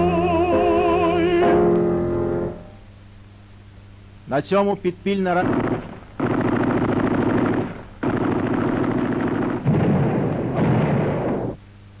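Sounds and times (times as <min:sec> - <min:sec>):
automatic gunfire bursts: 0:05.3 - 0:11.6.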